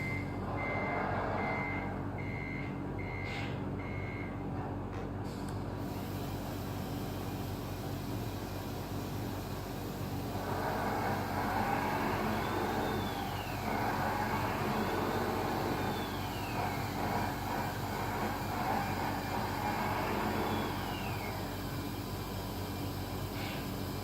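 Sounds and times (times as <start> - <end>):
toy truck motor whirring: 10.4 - 21.6.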